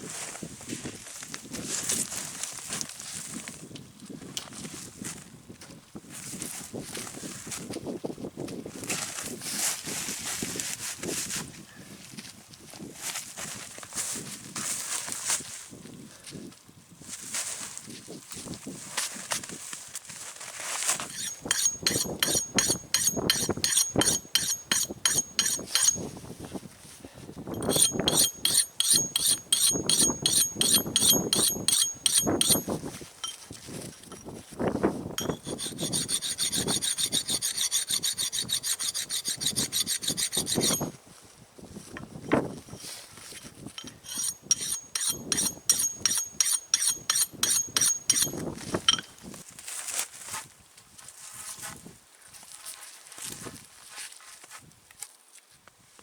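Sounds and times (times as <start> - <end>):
hand saw cutting wood: 20.9 - 26.1, 27.6 - 33.4, 35.2 - 40.9, 43.4 - 48.4
metal blade rasping: 21.0 - 26.1, 27.6 - 33.4, 35.2 - 40.9, 43.4 - 49.1.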